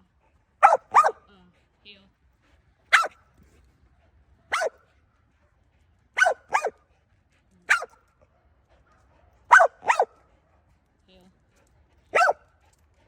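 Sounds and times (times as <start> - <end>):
dog barking: 0.6 - 1.2, 2.9 - 3.2, 4.5 - 4.8, 6.2 - 6.8, 7.7 - 8.0, 8.9 - 10.2, 12.1 - 12.4.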